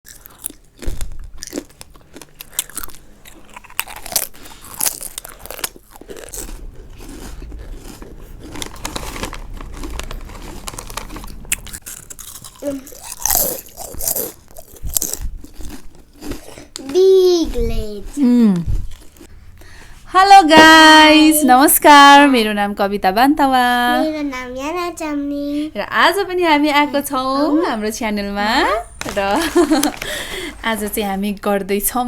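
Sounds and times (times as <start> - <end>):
crisps being chewed: 0.1 - 17.0, 17.8 - 19.3, 28.9 - 30.7.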